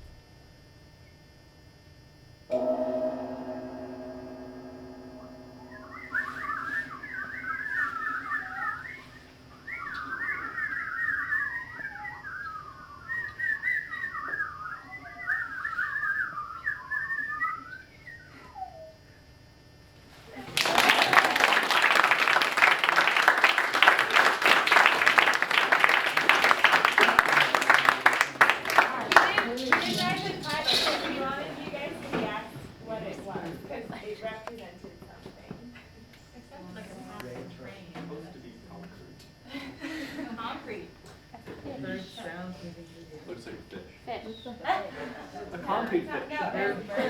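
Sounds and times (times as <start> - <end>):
gong ringing: 2.5 - 12.3
warbling trilling whistle: 2.5 - 18.9
loud applause: 20.4 - 32.1.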